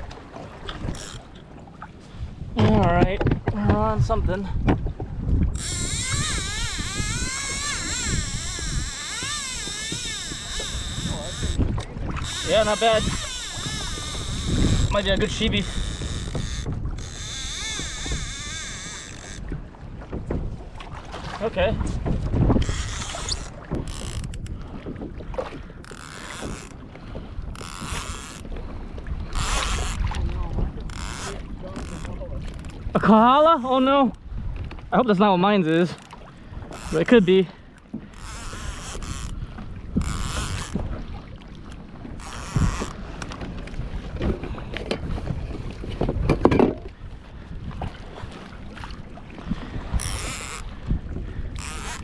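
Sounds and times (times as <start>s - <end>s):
wind buffeting microphone: 0.0s - 33.4s, 34.0s - 35.2s, 36.2s - 52.0s
knocks and clicks on boat: 0.0s - 52.0s
fishing reel buzzing: 0.9s - 1.3s, 5.5s - 19.5s, 22.6s - 24.5s, 25.8s - 26.8s, 27.5s - 28.4s, 29.3s - 30.0s, 30.9s - 32.7s, 36.7s - 37.1s, 38.1s - 40.8s, 42.2s - 43.0s, 50.0s - 50.7s, 51.5s - 52.0s.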